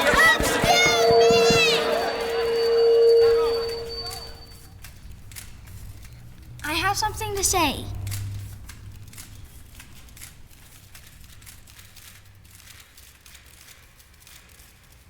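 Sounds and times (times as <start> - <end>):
faint crackling with clicks: 7.9 - 15.0.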